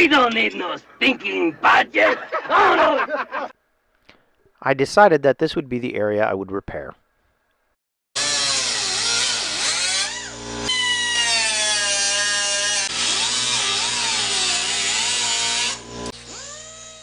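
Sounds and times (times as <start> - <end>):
rotary tool cutting steel: 8.2 - 17.0.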